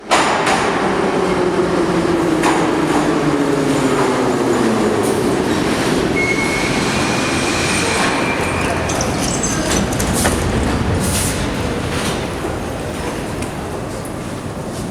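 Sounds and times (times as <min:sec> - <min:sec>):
metro train motor whine: 0:01.2 - 0:14.9.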